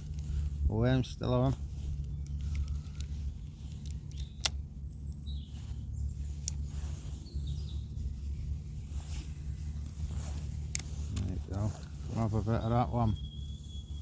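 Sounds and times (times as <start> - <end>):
steady low rumble: 0.0 - 14.0
faint bird chirps: 1.2 - 10.3, 10.9 - 14.0
sharp clicks: 3.7 - 5.2.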